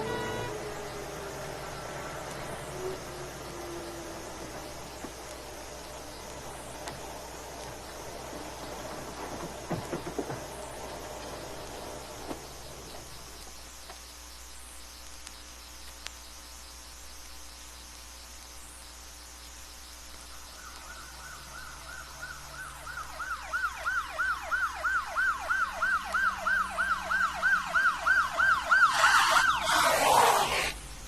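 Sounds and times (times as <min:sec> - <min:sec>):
vehicle passing by: 0:00.0 - 0:12.3, 0:28.8 - 0:30.8
police siren yelping: 0:21.0 - 0:30.7.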